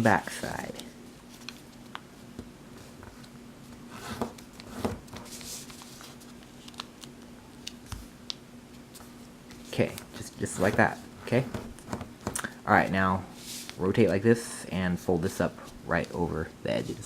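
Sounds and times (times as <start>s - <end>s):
paper crackling: 4.4s - 8.1s
paper rustling: 4.4s - 8.1s.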